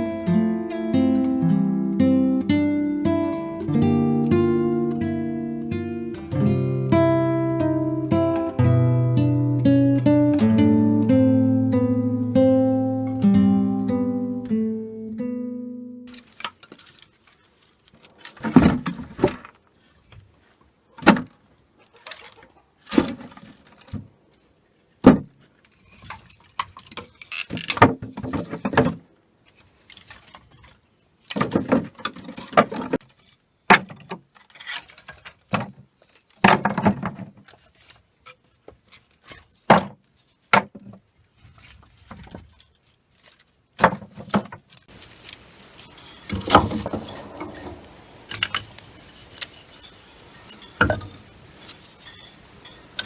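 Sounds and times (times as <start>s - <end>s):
rustling: 16.1s - 53.0s
objects knocking and clattering: 18.1s - 19.6s, 26.0s - 29.1s, 31.3s - 33.1s, 33.7s - 37.6s, 43.8s - 44.8s, 46.2s - 48.8s, 50.5s - 51.3s.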